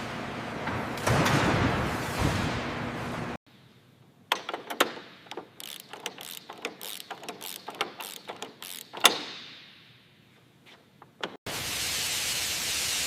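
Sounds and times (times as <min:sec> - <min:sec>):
mechanical clicks and clanks: 0:04.3 - 0:09.5, 0:11.0 - 0:11.5.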